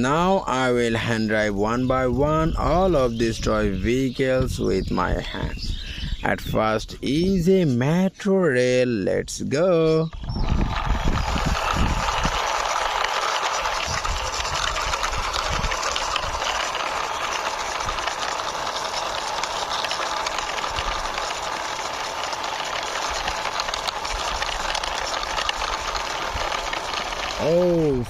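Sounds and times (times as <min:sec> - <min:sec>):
toy train wheels rattling: 0:10.2 - 0:28.0.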